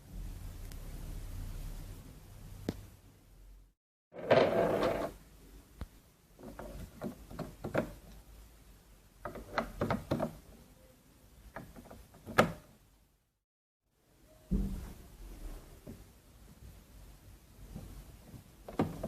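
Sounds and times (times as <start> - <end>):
irregular clicks and knocks: 5.8 - 8.3, 9.2 - 10.5, 11.4 - 12.8, 17.7 - 19.0.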